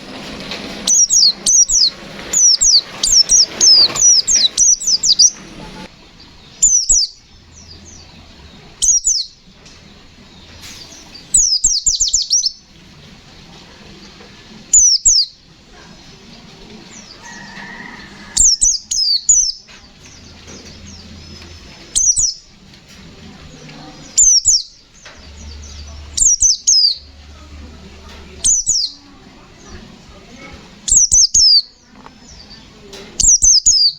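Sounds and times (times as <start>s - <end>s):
bird singing rapid high bursts: 0.9s - 5.7s, 25.4s - 27.2s, 28.4s - 29.0s.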